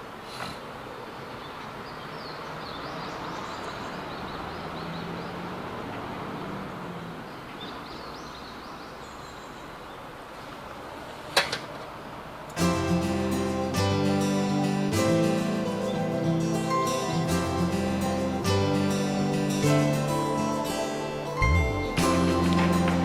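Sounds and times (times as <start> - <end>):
small birds chirping: 1.0 - 10.5, 13.0 - 23.0
steady rushing background: 12.6 - 23.0.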